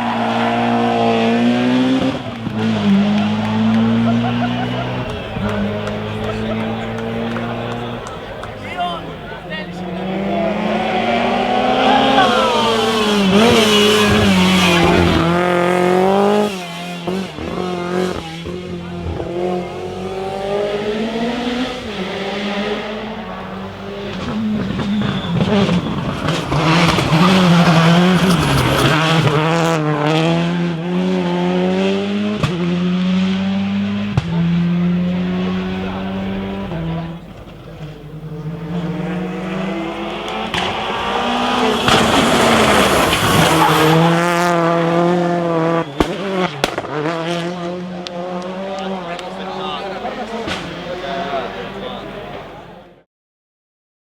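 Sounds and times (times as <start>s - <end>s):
rally car engines revving: 0.0s - 53.0s
tyres squealing: 3.3s - 15.3s, 24.2s - 29.6s, 40.5s - 44.9s.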